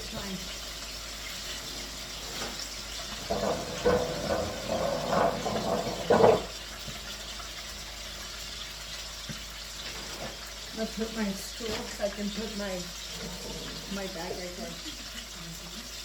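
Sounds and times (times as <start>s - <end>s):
chicken deep-frying in oil: 0.0s - 16.0s
knocks and scraping: 1.6s - 7.0s, 13.0s - 14.6s.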